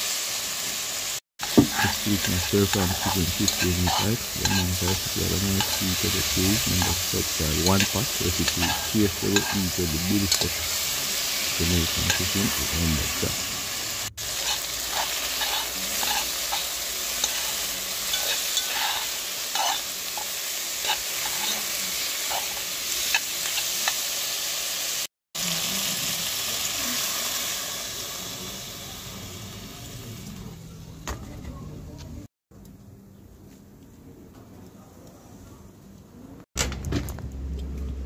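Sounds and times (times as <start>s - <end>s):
chicken sizzling in pot: 0.0s - 30.6s
metal spoon scraping a pot: 1.4s - 10.8s, 14.3s - 24.0s.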